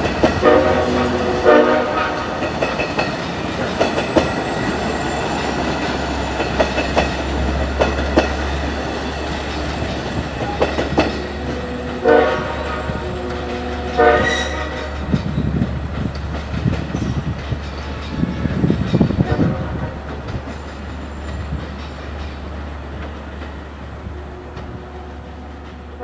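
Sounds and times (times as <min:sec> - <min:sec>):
train wheels clacking on rails: 0:00.0 - 0:26.0
train horn blasts: 0:00.2 - 0:02.6, 0:10.4 - 0:15.2, 0:17.8 - 0:20.2, 0:24.0 - 0:26.0.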